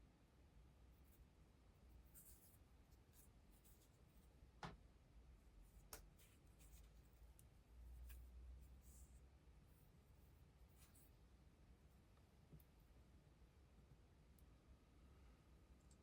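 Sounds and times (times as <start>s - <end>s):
faint scratching and rubbing: 0.9s - 4.4s, 5.6s - 12.8s.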